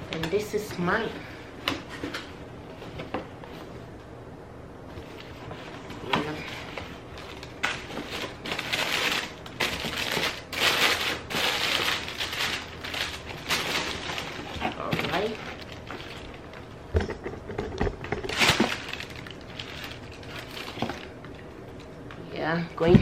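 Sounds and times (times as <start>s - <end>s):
packaging crinkling: 6.4s - 16.9s, 18.0s - 21.9s.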